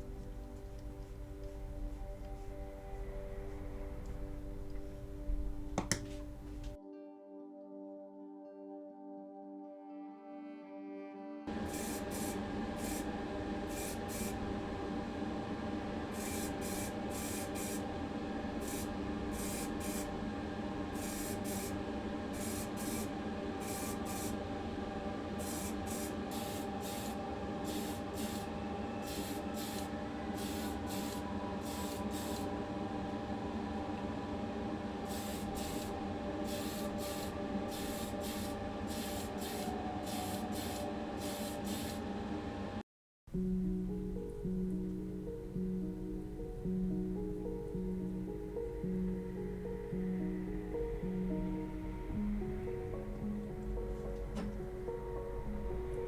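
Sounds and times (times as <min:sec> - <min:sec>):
steady hum: 0:00.0 - 0:06.8, 0:11.5 - 0:42.8, 0:43.4 - 0:56.0
spray paint hissing bursts: 0:11.6 - 0:13.1, 0:13.7 - 0:14.4, 0:16.1 - 0:17.9, 0:18.6 - 0:20.1, 0:21.0 - 0:24.4, 0:25.4 - 0:32.5, 0:35.1 - 0:42.0.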